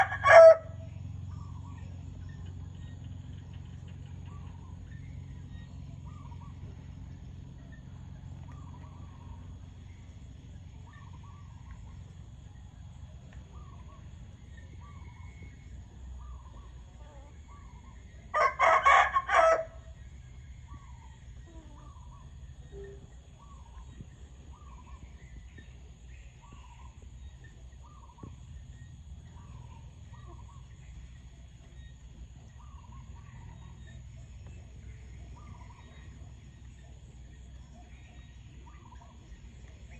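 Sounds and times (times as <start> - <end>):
rooster crowing: 0.0 - 0.9, 18.3 - 19.9
low steady hum: 0.0 - 39.9.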